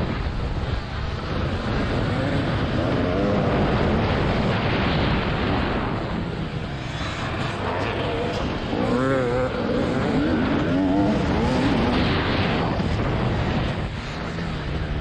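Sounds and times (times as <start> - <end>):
wind noise on microphone: 0.0 - 15.0
motocross engine revving: 1.4 - 4.6, 6.6 - 13.6.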